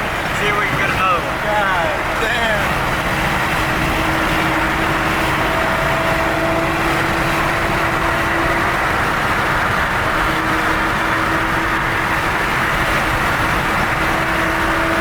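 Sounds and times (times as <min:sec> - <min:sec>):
car engine drone: 0:00.0 - 0:15.0
road and wind noise: 0:00.0 - 0:15.0.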